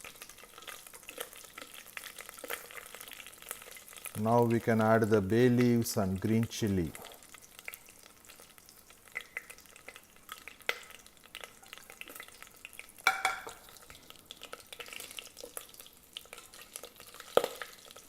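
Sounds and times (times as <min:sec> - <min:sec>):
spices sizzling in oil: 0:00.0 - 0:18.0
spoon stirring against pot: 0:13.1 - 0:13.8.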